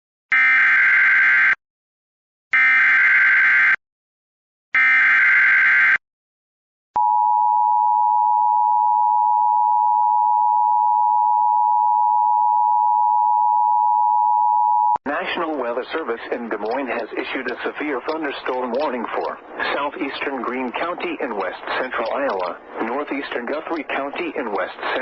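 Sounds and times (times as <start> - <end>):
steady warning alarm tone: 0.3 - 1.6, 2.6 - 3.8, 4.8 - 6.0.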